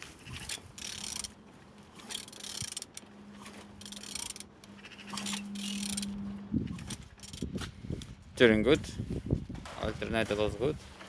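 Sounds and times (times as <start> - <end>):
mechanical ticking: 0.2 - 1.4, 2.0 - 7.5.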